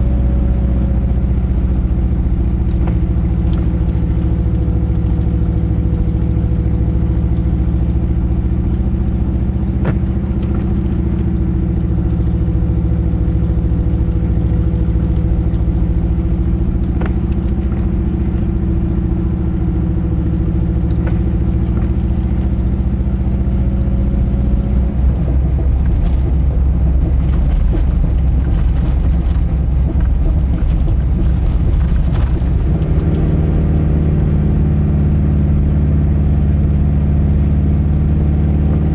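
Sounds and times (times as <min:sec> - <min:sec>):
car engine burbling: 0:00.0 - 0:38.9.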